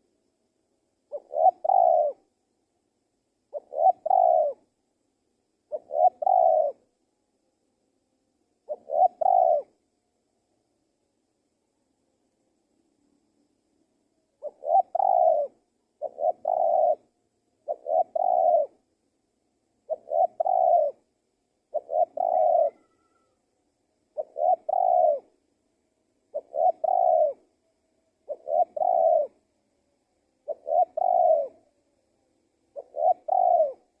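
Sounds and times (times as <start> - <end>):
dove cooing: 1.1 - 2.3, 3.5 - 4.7, 5.7 - 6.9, 8.6 - 9.8, 14.4 - 18.8, 19.8 - 21.1, 21.7 - 23.4, 24.1 - 25.4, 26.3 - 27.5, 28.2 - 29.4, 30.4 - 31.7, 32.7 - 34.0.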